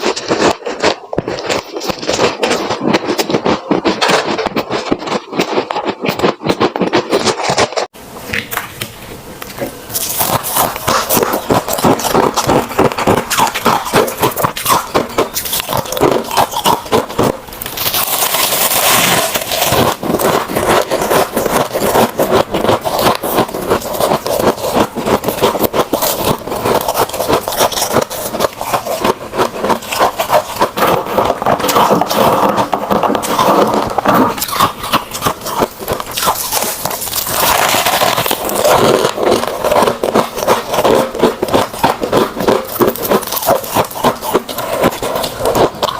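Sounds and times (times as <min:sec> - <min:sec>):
frost being crunched and chewed: 0:00.0 - 0:07.9, 0:09.4 - 0:45.9.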